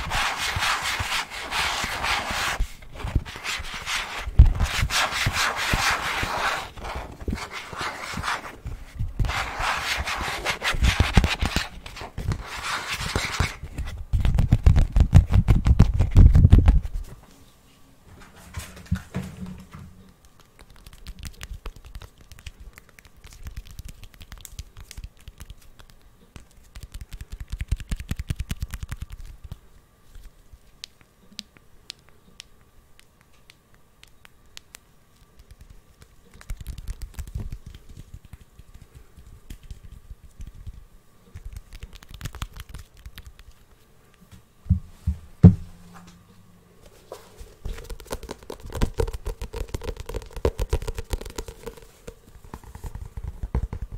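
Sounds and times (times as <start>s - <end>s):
tapping and scratching on objects: 47.6s - 53.9s.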